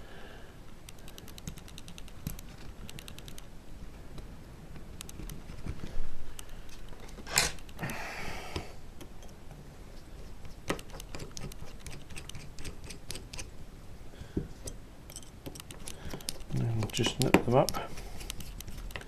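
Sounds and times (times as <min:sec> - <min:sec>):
small metal clicks and taps: 0:14.6 - 0:19.0.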